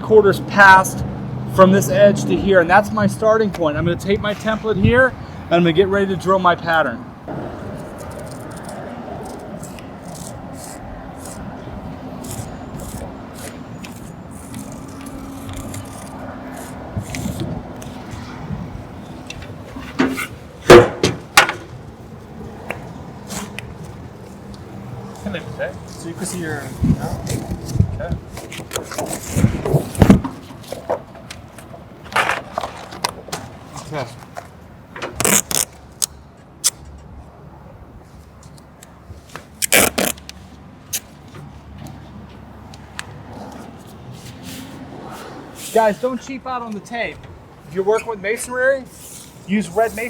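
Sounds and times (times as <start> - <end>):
masking tape ripping off roll: 12.2 - 18.0, 35.2 - 36.0, 39.6 - 40.3
sharp knocks and scrapes: 19.2 - 21.8, 25.9 - 35.7.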